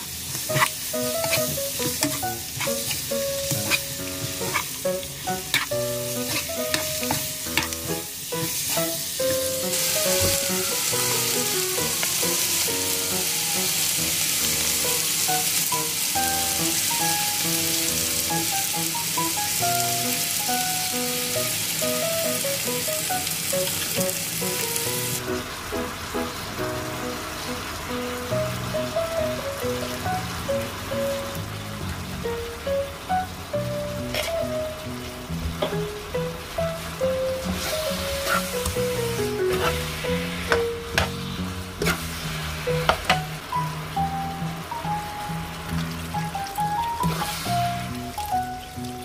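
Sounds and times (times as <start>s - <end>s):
chicken sizzling in a wok: 0.0s - 49.0s
metal spoon scraping a pan: 0.3s - 8.0s, 34.1s - 34.4s, 37.6s - 42.1s.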